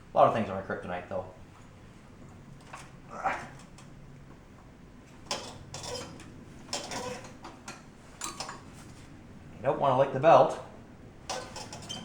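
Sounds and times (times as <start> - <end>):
metal clinks and scrapes: 11.3 - 12.0.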